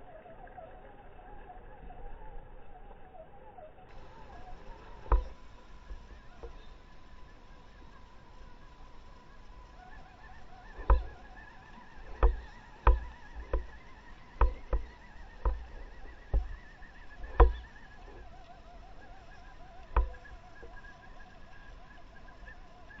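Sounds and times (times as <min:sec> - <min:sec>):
faint wavering whine: 0:00.0 - 0:23.0
sharp knocks: 0:05.0 - 0:05.4, 0:10.8 - 0:11.2, 0:12.1 - 0:17.7, 0:19.9 - 0:20.3.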